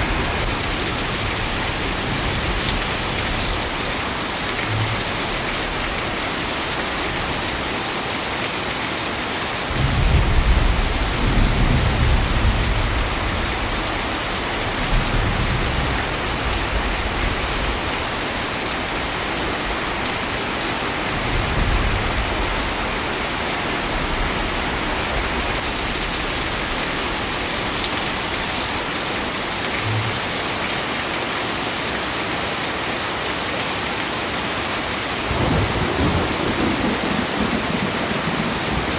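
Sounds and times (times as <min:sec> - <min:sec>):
heavy rain: 0:00.0 - 0:38.9
thunder rumbling: 0:35.3 - 0:38.9.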